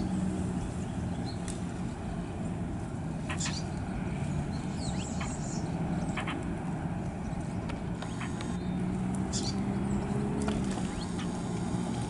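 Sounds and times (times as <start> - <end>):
small birds alarm calls: 3.2 - 3.8, 4.5 - 6.5, 8.0 - 10.2, 10.8 - 11.9.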